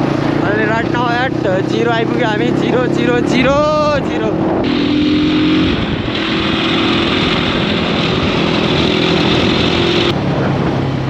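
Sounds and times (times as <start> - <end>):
motorcycle engine running: 0.0 - 11.0
wind on microphone: 0.0 - 11.0.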